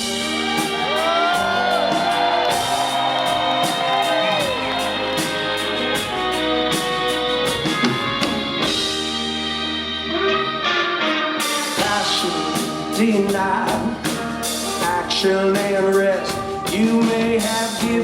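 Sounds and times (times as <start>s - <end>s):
drum and cymbal hits: 0.0s - 9.4s
rock band playing live: 0.0s - 18.0s.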